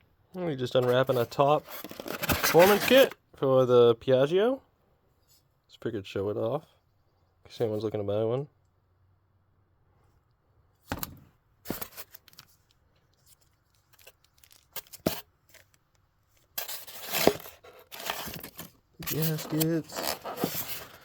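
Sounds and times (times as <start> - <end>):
packaging unwrapped by hand: 1.0 - 3.2, 13.7 - 15.8, 16.6 - 21.0
packaging tearing and crinkling: 1.6 - 3.2, 13.7 - 15.8, 16.6 - 21.0.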